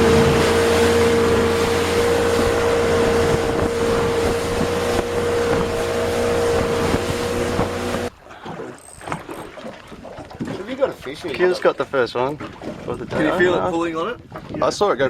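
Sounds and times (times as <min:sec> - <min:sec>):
motorboat engine running: 0:00.0 - 0:10.6
wind and water rushing: 0:00.0 - 0:15.0.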